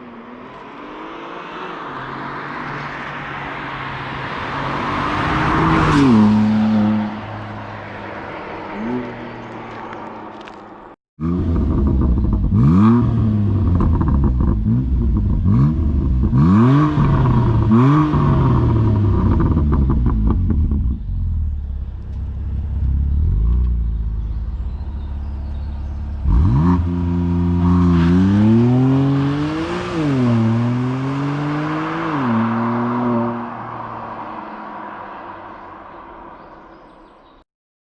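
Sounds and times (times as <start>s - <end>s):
exhaust crackling: 11.2s - 33.4s
car engine revving: 11.2s - 35.7s.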